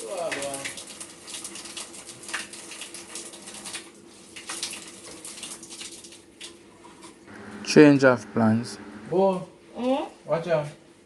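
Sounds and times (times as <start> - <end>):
faint steady hum: 7.3 - 9.4.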